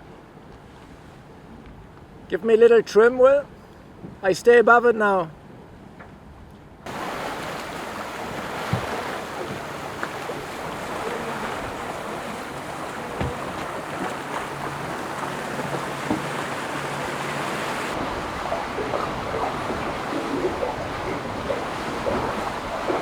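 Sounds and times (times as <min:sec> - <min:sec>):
water rushing along a hull: 0:00.0 - 0:23.0
wind buffeting the microphone: 0:06.3 - 0:23.0
soft knocks: 0:08.3 - 0:23.0.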